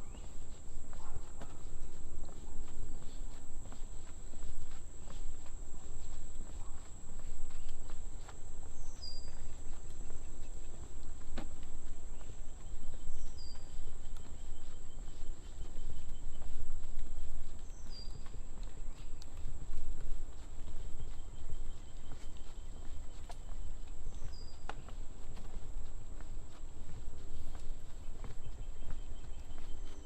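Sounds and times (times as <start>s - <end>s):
bird chirping: 8.7s - 10.9s, 12.1s - 16.5s.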